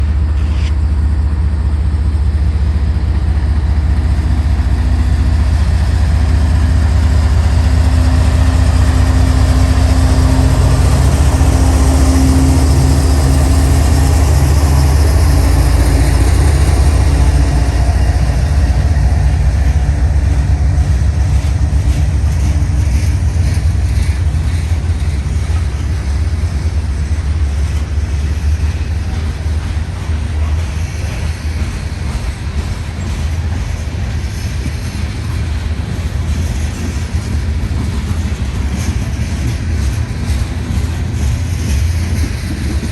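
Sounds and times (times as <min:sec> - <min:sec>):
locomotive engine rumble: 0:00.0 - 0:42.9.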